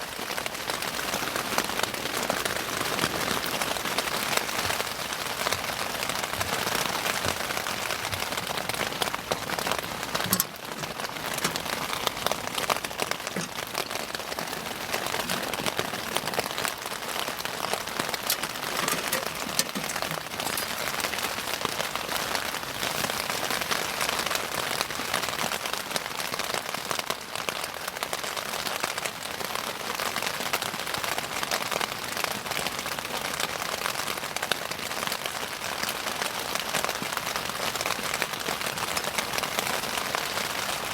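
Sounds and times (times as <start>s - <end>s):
bonfire crackling: 0.0s - 25.6s.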